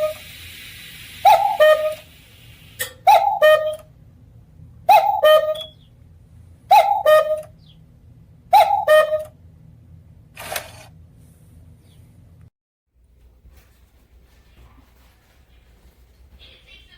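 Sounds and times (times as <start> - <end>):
cuckoo clock calling: 1.2 - 2.1, 2.8 - 3.9, 4.9 - 5.8, 6.7 - 7.6, 8.5 - 9.4.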